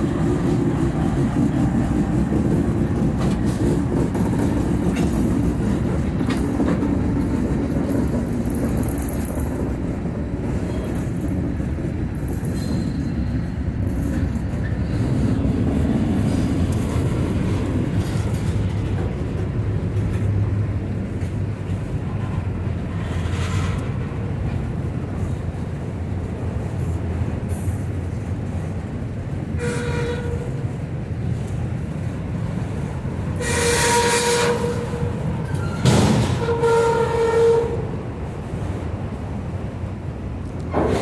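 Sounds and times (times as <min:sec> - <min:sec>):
steel wheels rumbling on rail: 0:00.0 - 0:41.0.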